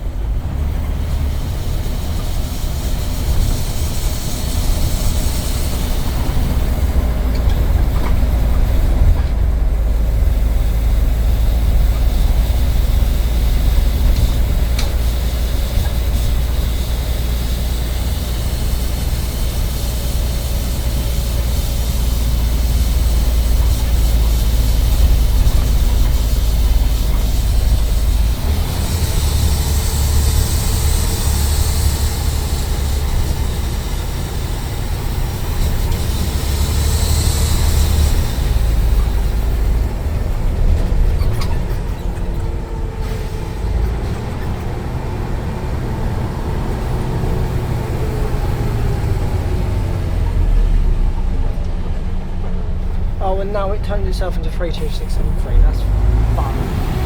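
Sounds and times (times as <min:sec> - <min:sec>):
bus engine rumbling and whining: 0:00.0 - 0:57.0
air hissing: 0:01.0 - 0:07.3, 0:09.9 - 0:40.1.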